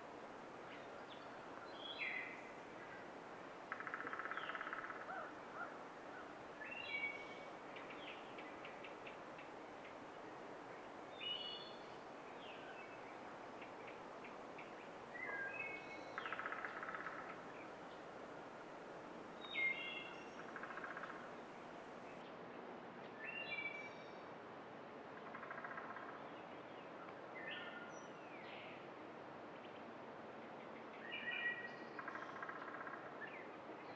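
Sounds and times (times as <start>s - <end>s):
faint steady hiss: 0.0s - 33.9s
wild birds calling: 3.7s - 10.0s, 13.6s - 18.6s, 19.4s - 21.9s.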